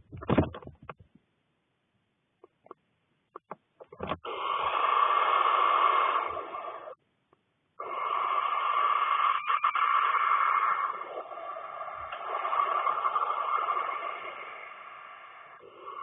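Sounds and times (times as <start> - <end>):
owl chicks hissing begging calls: 4.3 - 7.0, 7.8 - 16.0.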